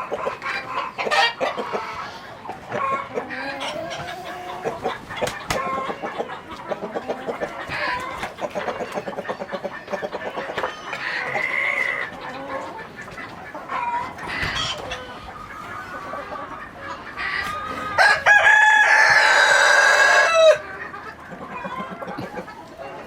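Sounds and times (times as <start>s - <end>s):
chickens clucking: 0.0s - 23.0s
rooster crowing: 17.9s - 20.6s.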